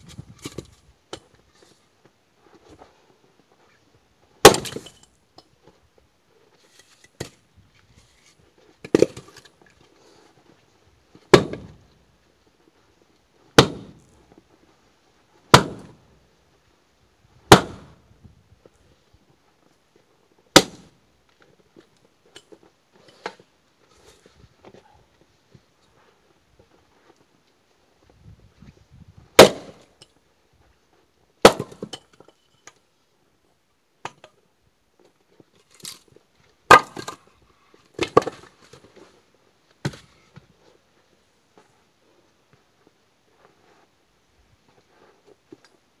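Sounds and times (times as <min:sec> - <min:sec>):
axe cracking into logs: 0:04.4 - 0:05.0, 0:08.8 - 0:09.5, 0:11.3 - 0:11.8, 0:13.6 - 0:14.2, 0:15.5 - 0:16.0, 0:17.5 - 0:17.9, 0:20.6 - 0:20.9, 0:29.4 - 0:29.9, 0:31.4 - 0:32.0, 0:36.7 - 0:37.2.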